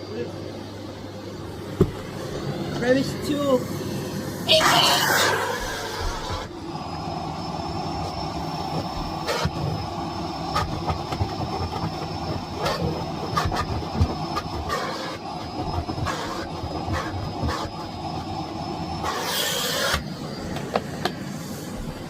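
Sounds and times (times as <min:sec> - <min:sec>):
vacuum cleaner whining: 0:00.0 - 0:22.0.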